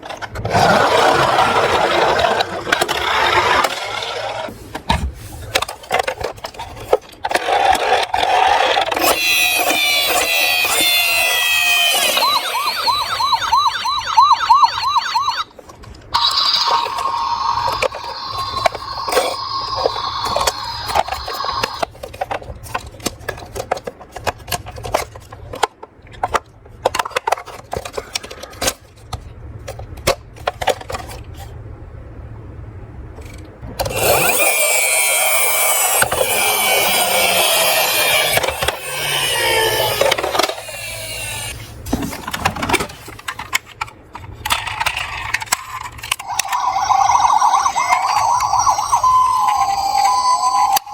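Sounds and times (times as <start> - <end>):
toy siren warbling: 9.0 - 15.6, 16.2 - 21.9, 33.9 - 41.6, 46.2 - 50.9
toy cars clattering down a slope: 33.8 - 41.6.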